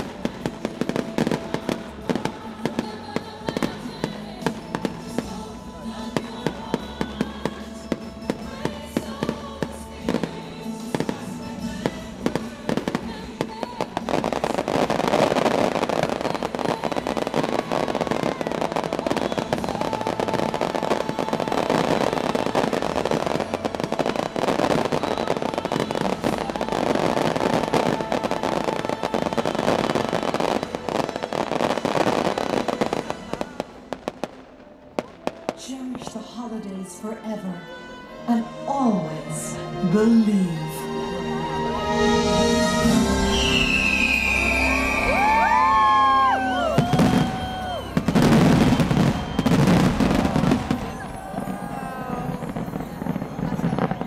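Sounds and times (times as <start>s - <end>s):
fireworks bangs and crackling: 0.0s - 36.5s, 41.9s - 54.0s
music playing: 0.0s - 54.0s.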